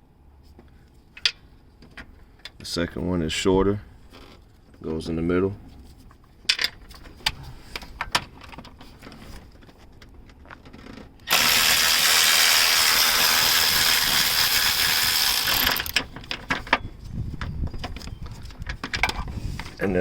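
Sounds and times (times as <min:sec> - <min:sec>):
power tool driving bolt: 0:11.3 - 0:16.1.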